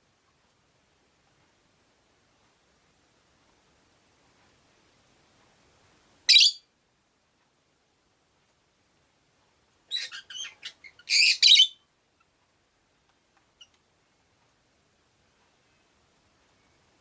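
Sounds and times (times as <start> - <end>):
lovebird chirping: 6.3 - 6.7, 9.9 - 12.3.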